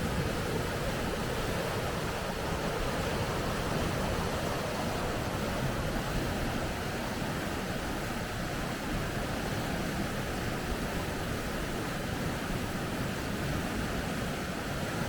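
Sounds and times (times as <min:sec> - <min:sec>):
water rushing over rapids: 0:00.0 - 0:15.0.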